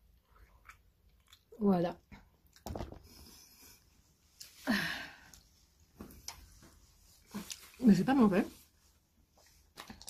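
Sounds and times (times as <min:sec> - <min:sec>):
person chewing food: 0:00.0 - 0:01.6, 0:09.5 - 0:10.0.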